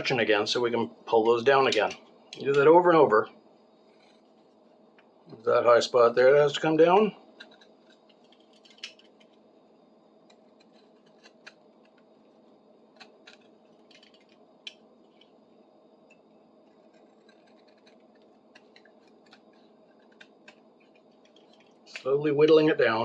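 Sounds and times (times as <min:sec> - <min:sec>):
low steady hum: 0:00.0 - 0:23.0
knife whittling wood: 0:16.6 - 0:22.3.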